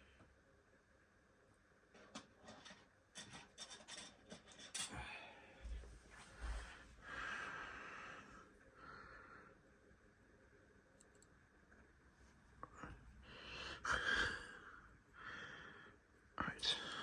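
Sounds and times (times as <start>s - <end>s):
soft rubbing and rustling: 5.7s - 7.0s.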